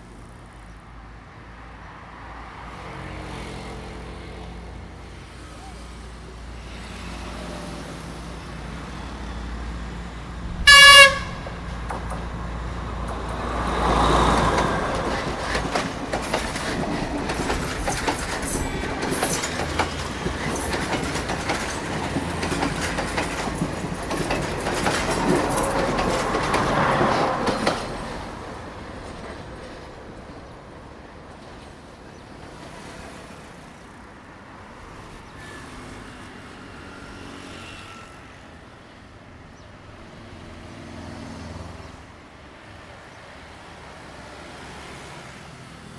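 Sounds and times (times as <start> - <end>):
train horn blast: 10.5 - 11.8
train wheels clacking over rail joints: 10.9 - 29.9.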